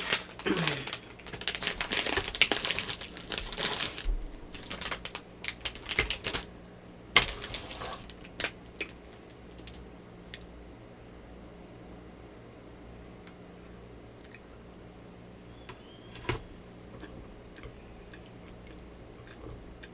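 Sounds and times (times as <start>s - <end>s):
plastic wrapper crinkling: 0.0s - 6.6s, 7.2s - 9.8s.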